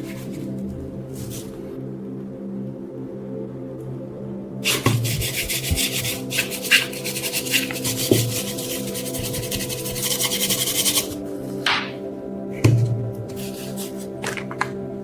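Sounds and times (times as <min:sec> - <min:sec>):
background music: 0:00.0 - 0:15.0
knife blade being sanded: 0:04.7 - 0:11.2.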